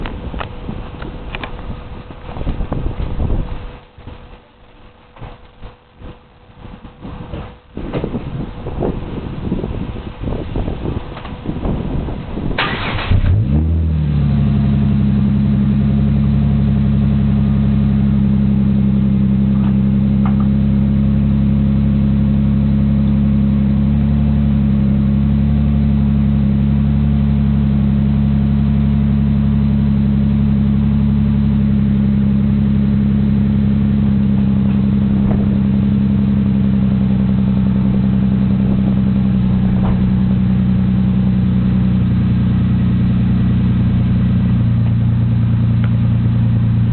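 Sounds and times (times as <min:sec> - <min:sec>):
car engine cranking: 0:12.4 - 0:13.9, 0:34.2 - 0:42.0
car engine fast idle: 0:12.4 - 0:15.6.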